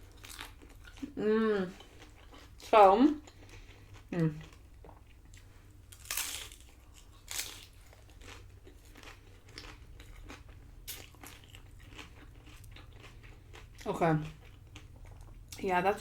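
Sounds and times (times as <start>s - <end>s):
tortilla chips crunching: 0.0s - 1.2s, 5.9s - 15.4s.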